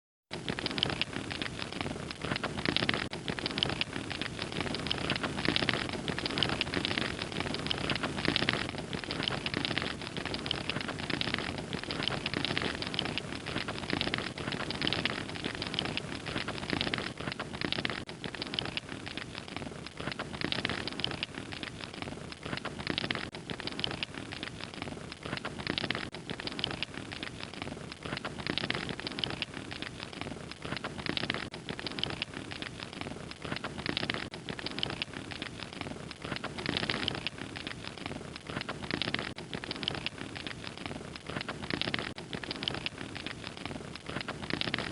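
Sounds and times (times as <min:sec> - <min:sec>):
fire crackling: 0:00.3 - 0:44.9.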